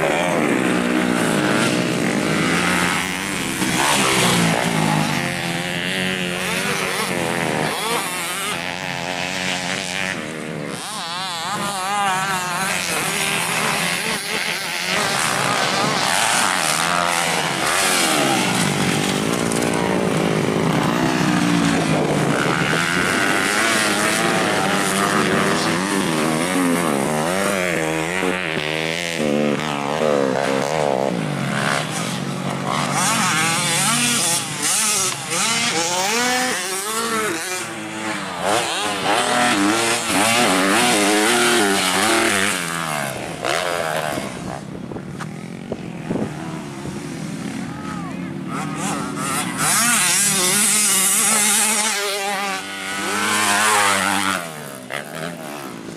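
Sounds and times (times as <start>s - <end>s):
motocross bikes revving: 0.0s - 55.9s.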